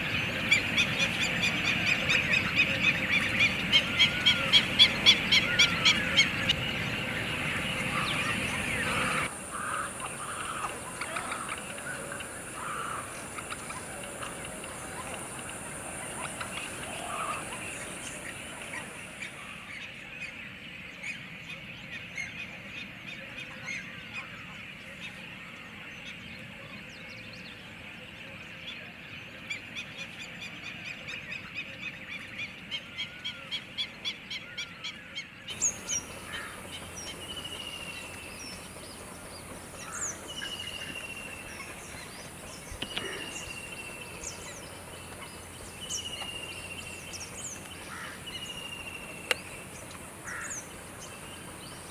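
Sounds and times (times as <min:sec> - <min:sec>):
water birds calling: 0:00.0 - 0:19.8, 0:35.5 - 0:51.9.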